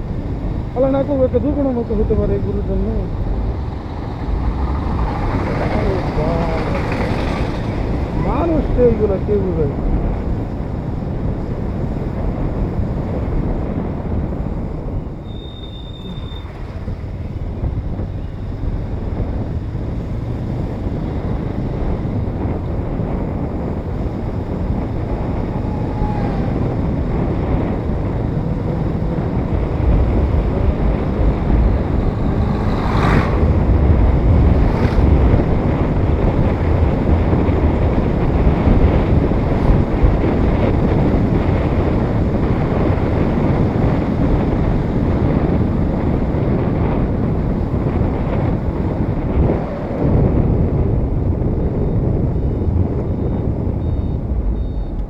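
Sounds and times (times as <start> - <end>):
motorcycle engine and road rumble: 0.0 - 55.0
wind buffeting microphone: 0.0 - 55.0.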